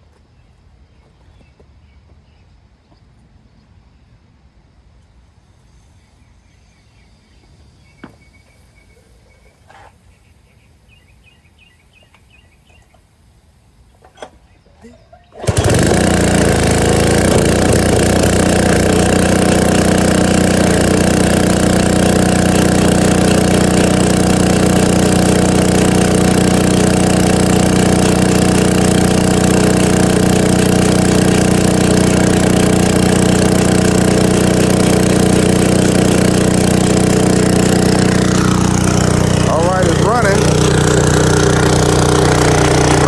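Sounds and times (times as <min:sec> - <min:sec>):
small gasoline engine running: 0:15.1 - 0:43.0.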